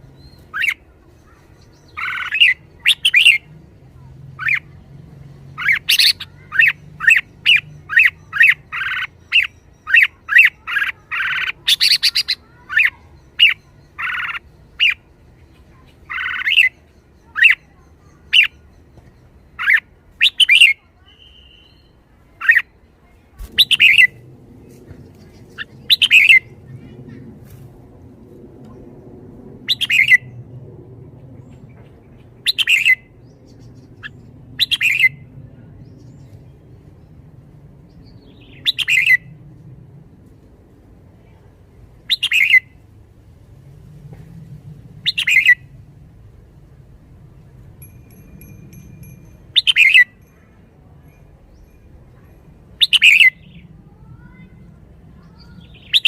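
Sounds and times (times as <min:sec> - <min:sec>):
bird chirping and squawking: 0:00.5 - 0:03.4, 0:05.6 - 0:15.0, 0:16.1 - 0:16.7, 0:23.6 - 0:24.2, 0:25.4 - 0:26.5, 0:45.0 - 0:45.6, 0:52.8 - 0:53.5.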